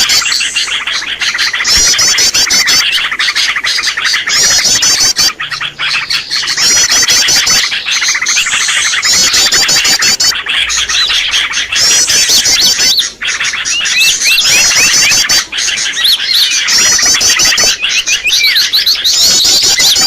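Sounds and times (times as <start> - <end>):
rapid high bird trill: 0.0 - 20.0
songbirds chirping and whistling: 0.0 - 20.0.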